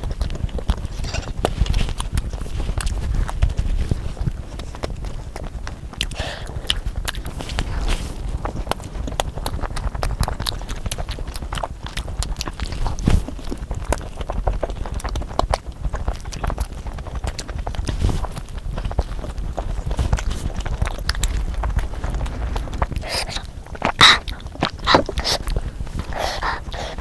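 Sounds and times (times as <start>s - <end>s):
chewing and mouth sounds: 0.0s - 27.0s.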